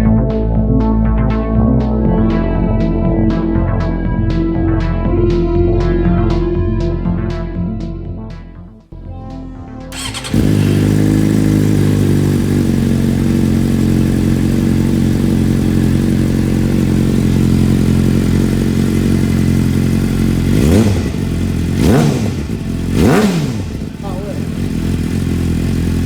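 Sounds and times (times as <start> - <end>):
motorcycle engine idling and revving: 9.9 - 26.0.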